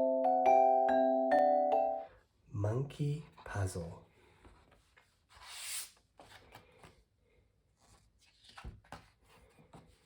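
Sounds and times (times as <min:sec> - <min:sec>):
paper rustling: 0:07.8 - 0:10.0.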